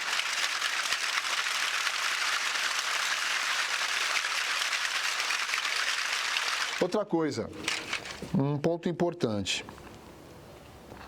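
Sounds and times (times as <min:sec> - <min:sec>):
plastic pots rattling: 0:00.0 - 0:07.0.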